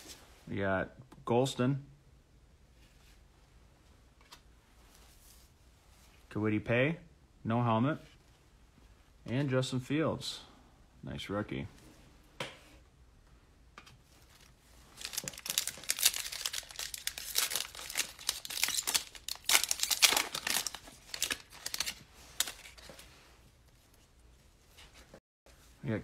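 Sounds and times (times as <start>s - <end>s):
plastic wrapper crinkling: 14.2s - 22.9s.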